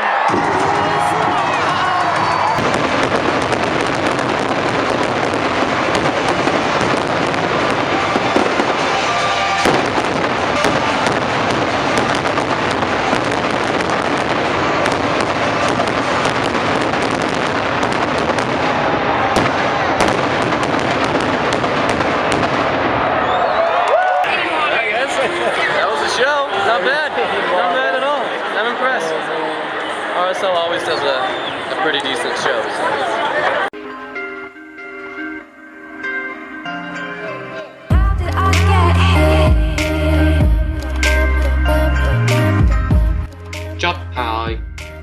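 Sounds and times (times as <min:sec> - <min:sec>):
constant roar: 0:00.0 - 0:33.7
fireworks bangs and crackles: 0:00.1 - 0:28.4.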